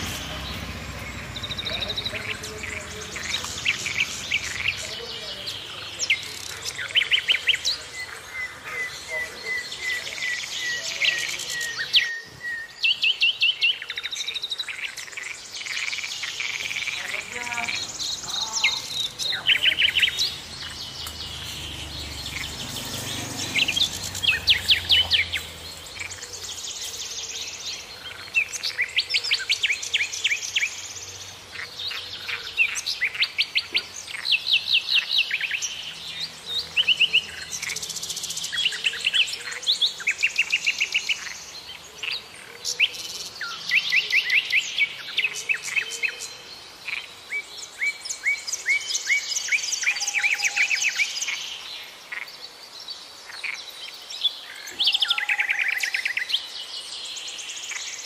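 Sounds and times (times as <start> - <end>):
small birds chirping and trilling: 0.0 - 58.0.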